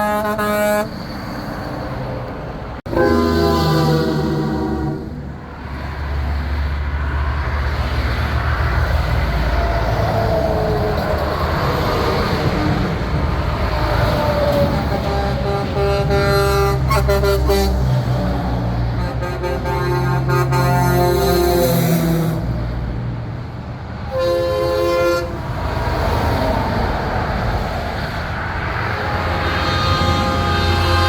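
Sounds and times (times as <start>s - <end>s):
truck horn blaring: 0.0s - 1.0s, 2.9s - 5.5s, 14.6s - 22.6s, 24.1s - 25.6s, 28.6s - 31.0s
diesel trucks driving past: 0.0s - 31.0s.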